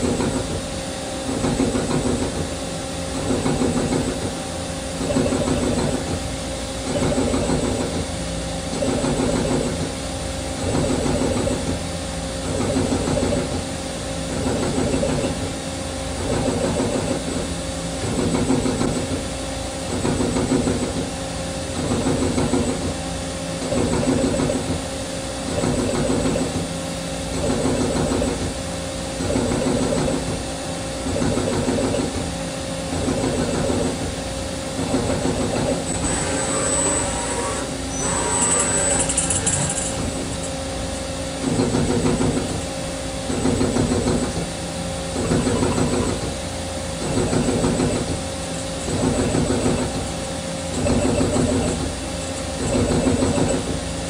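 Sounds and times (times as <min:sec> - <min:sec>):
steady machine hum: 0:00.0 - 0:54.0
lathe tool cutting workpiece: 0:35.3 - 0:40.5.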